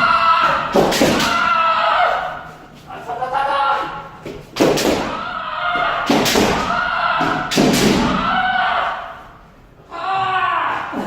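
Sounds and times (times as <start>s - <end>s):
long shout: 0.0s - 4.1s, 5.0s - 11.0s.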